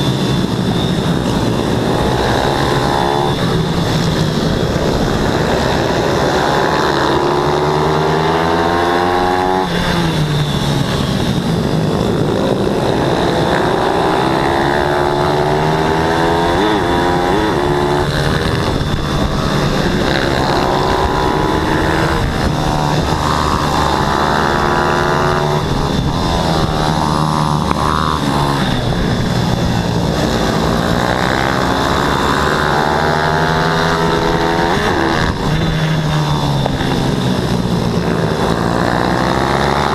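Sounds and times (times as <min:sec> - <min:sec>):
pit bike engines revving: 0:00.0 - 0:39.9.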